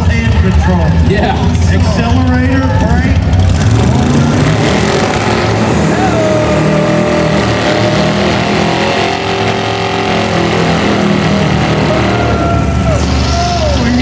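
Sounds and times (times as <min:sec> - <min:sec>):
car engine at high revs: 0:00.0 - 0:14.0
spinning tyres hissing: 0:03.5 - 0:14.0.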